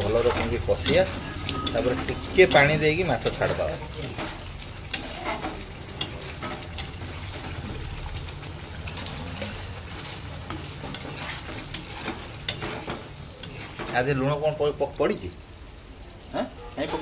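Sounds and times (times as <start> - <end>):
steel spatula scraping pan: 0.0 - 7.7, 8.9 - 14.4
fish sizzling in a pan: 0.0 - 17.0
metal spatula clicking on pan: 0.8 - 4.2, 4.9 - 7.0, 11.6 - 13.6.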